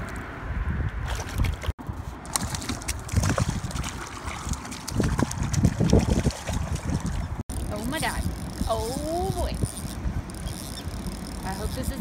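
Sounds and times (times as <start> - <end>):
fish splashing in water: 2.3 - 7.6.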